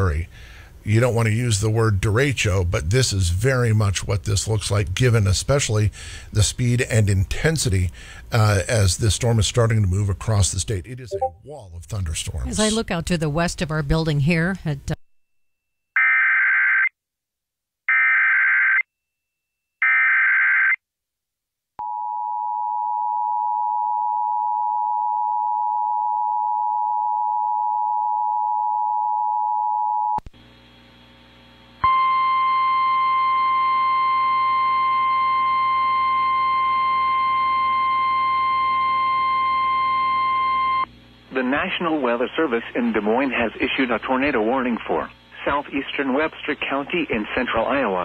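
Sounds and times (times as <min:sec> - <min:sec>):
two-tone attention signal: 0:11.1 - 0:11.4
steady warning alarm tone: 0:31.8 - 0:40.9.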